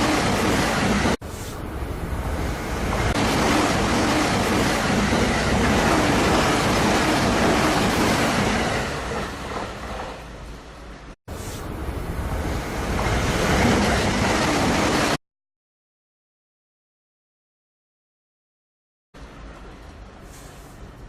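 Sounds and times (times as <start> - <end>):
electric train passing: 0.0 - 15.2.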